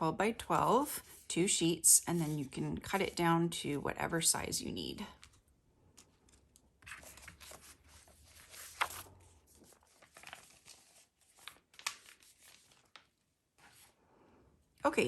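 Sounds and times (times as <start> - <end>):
paper sheets rustling: 5.2 - 14.0.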